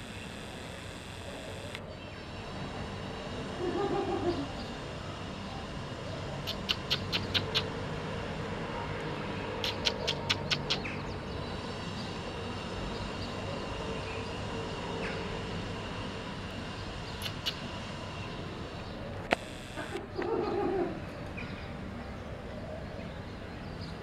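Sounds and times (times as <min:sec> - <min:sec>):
low outdoor background hum: 0:00.0 - 0:24.0
small bird chirping: 0:06.4 - 0:07.8, 0:09.6 - 0:11.2, 0:17.1 - 0:17.8.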